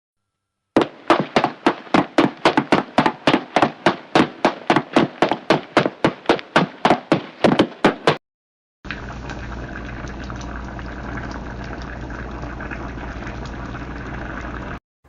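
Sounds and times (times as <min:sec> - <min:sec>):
rapid chopping on cutting board: 0:00.8 - 0:08.2.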